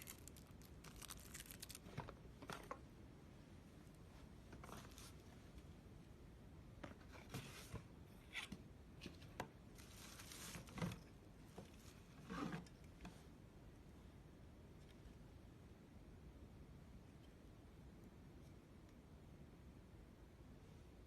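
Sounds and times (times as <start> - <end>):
short rustling scrapes: 9.8 - 11.0.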